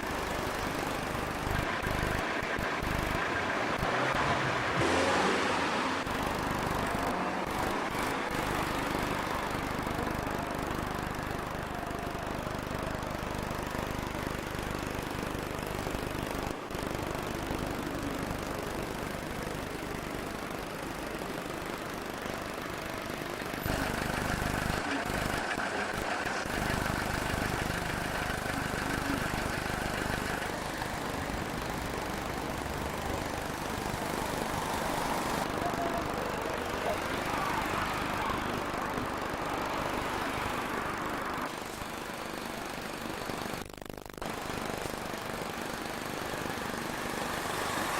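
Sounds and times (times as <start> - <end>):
heavy vehicle engine running: 0.0 - 47.9
large diesel engine throbbing: 20.9 - 41.7.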